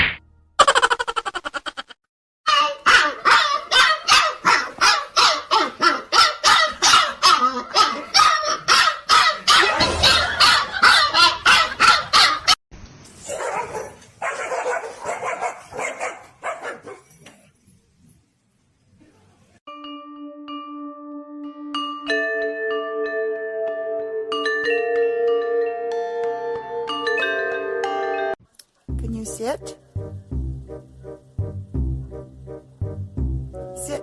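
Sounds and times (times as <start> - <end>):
dog barking rapidly: 2.5 - 12.6, 13.3 - 17.0.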